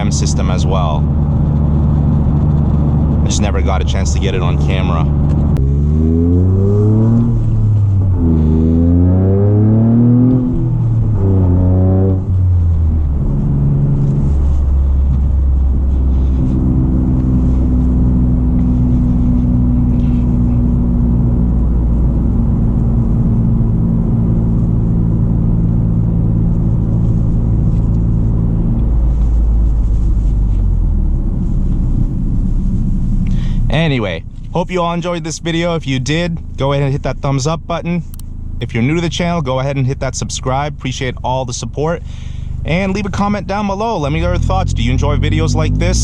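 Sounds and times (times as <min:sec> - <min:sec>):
car engine revving from cabin: 0:00.6 - 0:33.8, 0:44.0 - 0:46.0.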